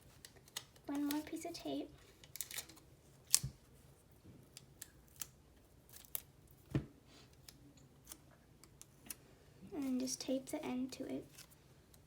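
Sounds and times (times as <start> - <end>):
handling tape and paper: 0.0 - 3.8.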